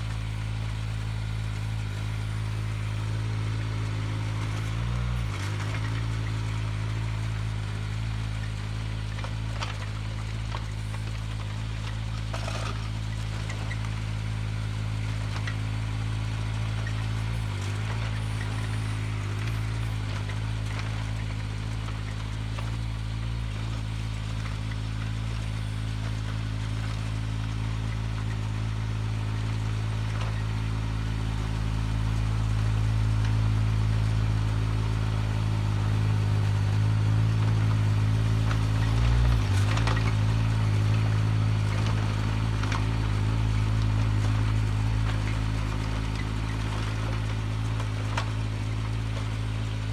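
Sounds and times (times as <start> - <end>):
excavator engine running: 0.0 - 49.9.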